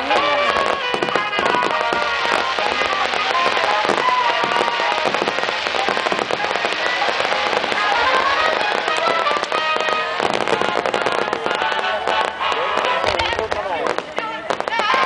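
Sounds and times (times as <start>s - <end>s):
fireworks bursting and crackling: 0.0s - 15.0s
music playing: 0.0s - 15.0s.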